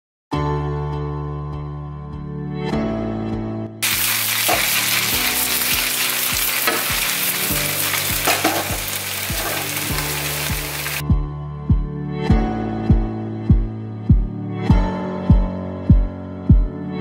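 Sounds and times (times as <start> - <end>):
noodles sizzling in a wok: 3.8 - 11.0.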